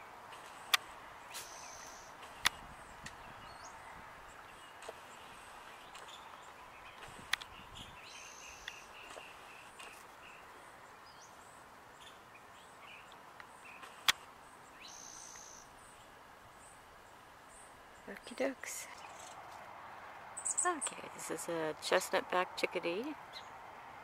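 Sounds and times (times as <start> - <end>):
bird chirps: 0.4 - 19.4, 20.4 - 21.2
sharp clicks: 2.2 - 3.2, 13.4 - 14.3.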